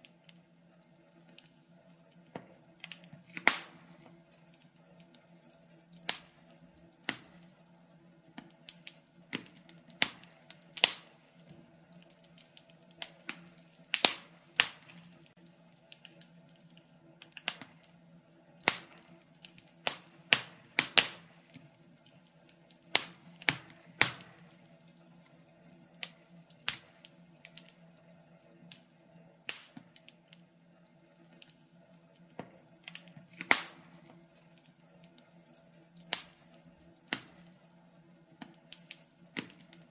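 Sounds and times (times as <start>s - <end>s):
faint steady hum: 0.0s - 39.9s
wood fire crackling: 0.0s - 39.9s.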